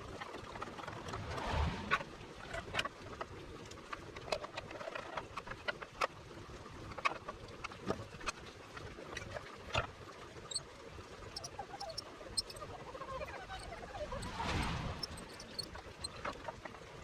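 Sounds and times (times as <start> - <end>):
small parts and tools clicking: 11.4 - 12.6, 13.5 - 16.2.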